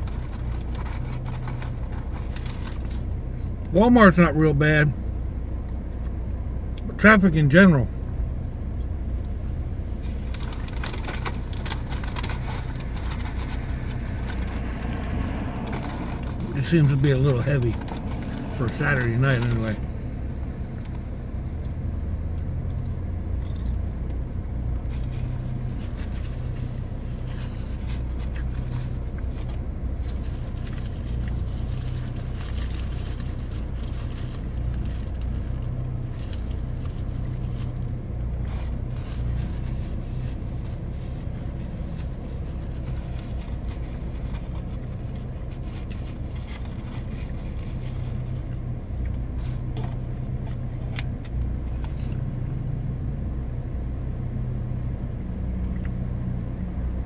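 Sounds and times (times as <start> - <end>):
paper wrapper rustling: 0.0 - 3.1, 10.0 - 19.8, 24.9 - 48.6
car engine idling: 0.0 - 57.0.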